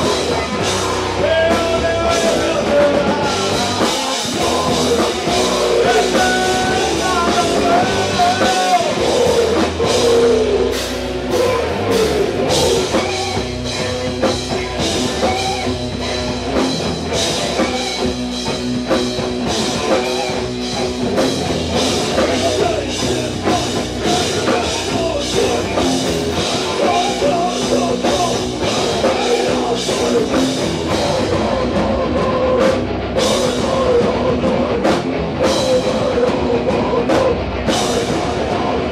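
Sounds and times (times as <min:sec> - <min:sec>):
drum kit: 0:00.0 - 0:38.9
electric guitar: 0:00.0 - 0:38.9
wavering lead guitar line: 0:00.0 - 0:38.9.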